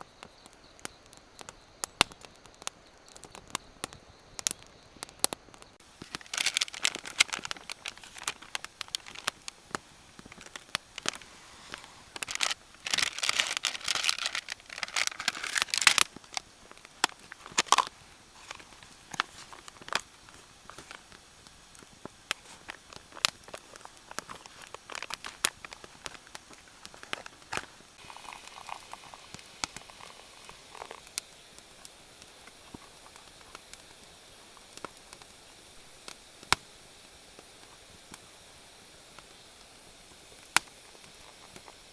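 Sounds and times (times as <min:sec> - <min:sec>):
campfire crackling and popping: 0:00.1 - 0:41.9
rustling crinkling handling noise: 0:05.8 - 0:28.7.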